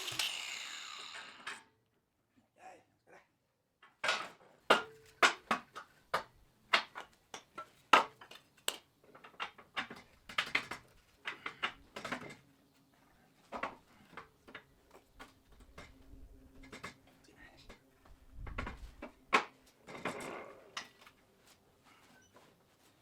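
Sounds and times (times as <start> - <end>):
steel parts clanking: 0.0 - 1.6.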